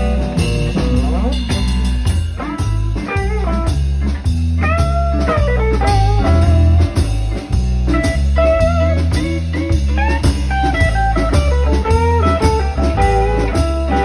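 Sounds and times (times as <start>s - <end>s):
lead guitar bending notes: 0.0s - 3.7s
bass and drums: 0.0s - 14.0s.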